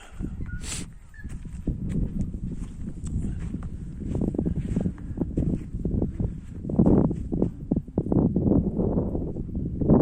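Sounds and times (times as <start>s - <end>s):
steady low rumble: 0.0s - 10.0s
footsteps walking: 0.9s - 7.7s.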